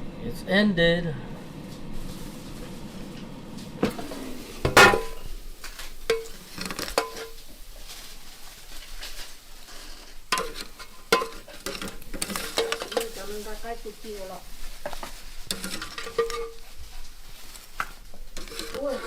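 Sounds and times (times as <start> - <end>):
dishes and utensils clinking: 4.7 - 5.3, 6.1 - 7.5, 10.3 - 13.2, 15.5 - 16.7.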